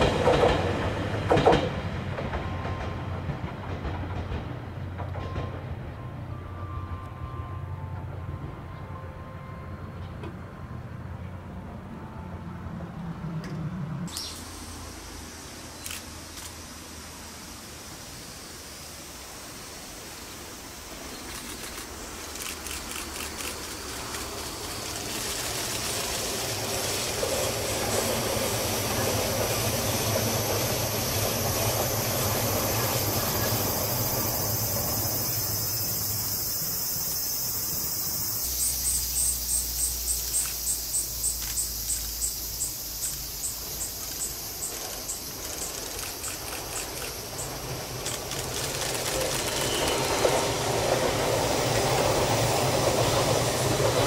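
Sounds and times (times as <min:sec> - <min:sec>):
train running: 0:00.0 - 0:54.0
insect chirping: 0:14.1 - 0:54.0.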